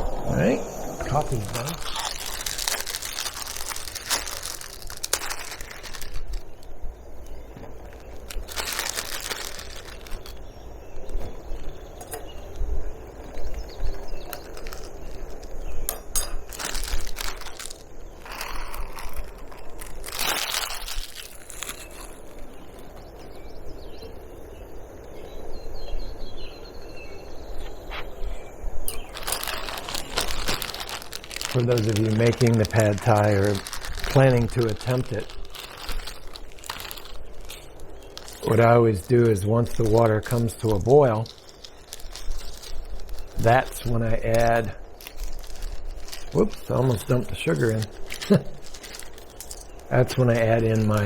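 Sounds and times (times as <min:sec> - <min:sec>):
wind rumble on microphone: 0:00.0 - 0:02.5
wind buffeting microphone: 0:00.0 - 0:05.0
packaging crinkling and rustling: 0:01.0 - 0:23.6, 0:28.8 - 0:51.0.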